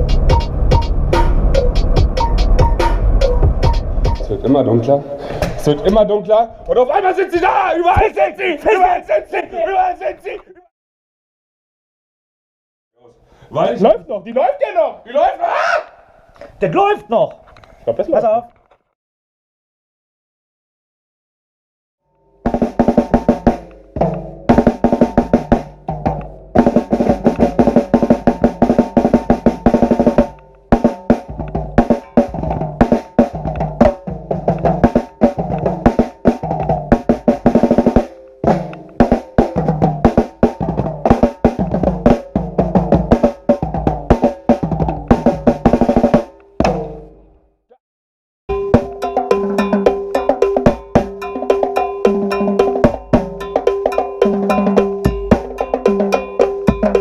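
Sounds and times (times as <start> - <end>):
drum group playing: 0.0 - 4.6, 22.5 - 47.1, 48.5 - 57.0.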